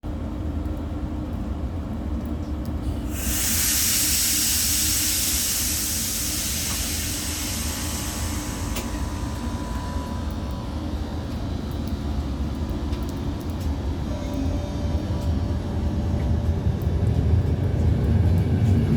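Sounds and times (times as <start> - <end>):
train rumbling: 0.1 - 18.9
loud hiss of air: 2.9 - 10.5.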